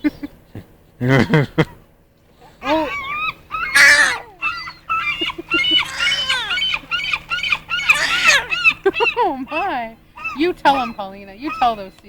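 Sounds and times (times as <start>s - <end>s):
seagulls calling: 1.2s - 12.0s
baby squealing: 2.4s - 11.8s.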